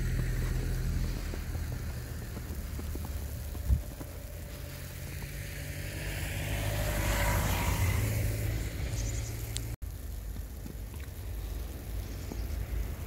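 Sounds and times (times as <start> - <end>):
car passing: 0.0 - 9.8
low traffic rumble: 0.0 - 13.0.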